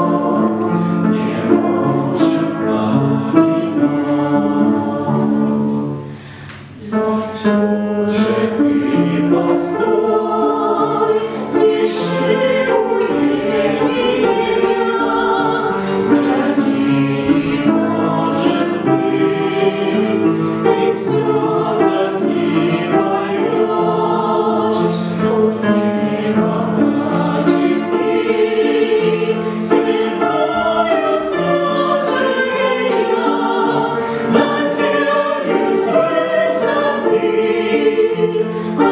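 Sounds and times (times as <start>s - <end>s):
choir singing in harmony: 0.0s - 38.9s.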